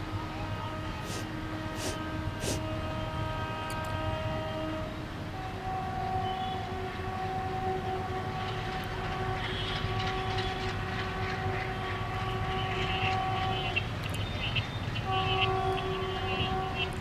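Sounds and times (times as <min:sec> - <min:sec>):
train running by: 0:00.0 - 0:17.0
wheels rattling on rails: 0:06.1 - 0:17.0.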